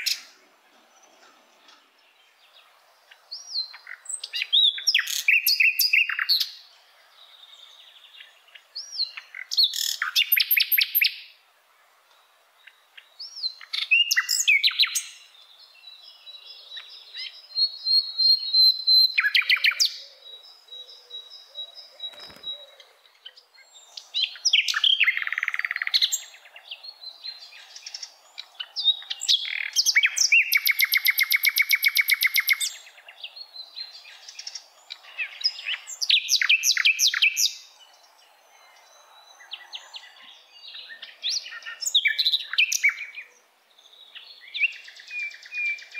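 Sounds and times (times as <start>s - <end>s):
small birds chirping and trilling: 0.0s - 11.4s, 12.0s - 45.9s.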